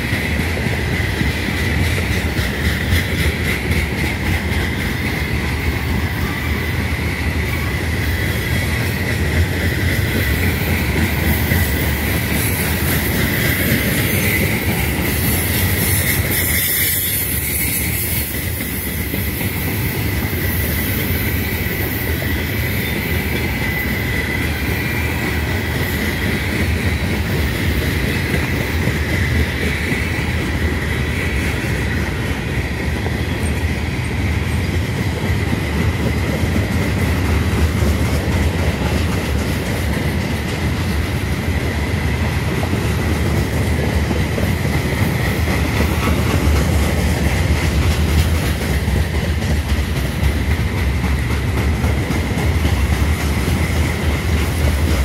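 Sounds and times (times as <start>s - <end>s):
train wheels rumbling on rails: 0.0s - 55.0s
high-pitched wheel squeal: 13.3s - 19.1s.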